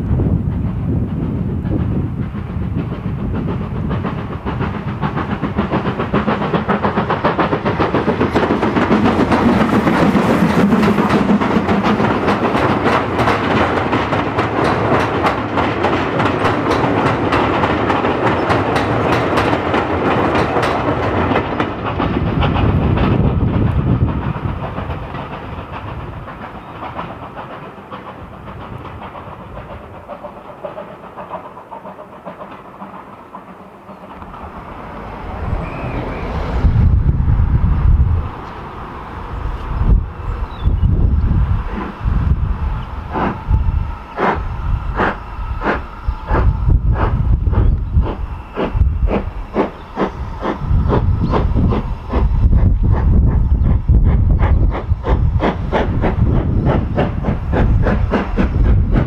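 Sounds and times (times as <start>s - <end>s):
steam train passing over bridge: 0.0s - 59.0s
wheels clattering over rail joints: 0.4s - 37.0s.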